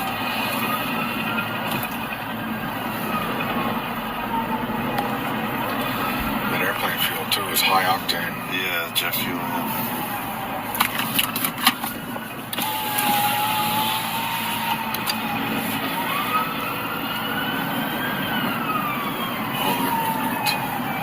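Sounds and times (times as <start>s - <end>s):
emergency vehicle siren wailing: 0.0s - 21.0s
traffic noise: 0.0s - 21.0s.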